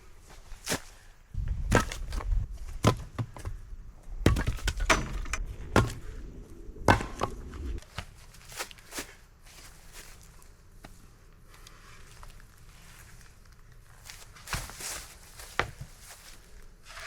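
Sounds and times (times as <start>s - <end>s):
axe chopping firewood: 1.4s - 3.6s, 4.2s - 6.1s, 6.8s - 7.8s.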